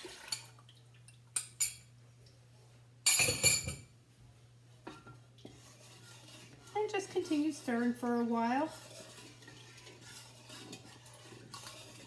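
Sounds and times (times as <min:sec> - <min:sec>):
utensils clinking on pot and glass: 0:03.0 - 0:03.9.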